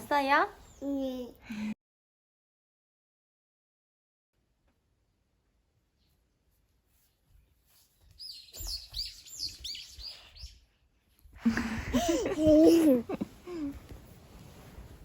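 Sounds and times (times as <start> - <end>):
small bird chirping: 8.0 - 11.0.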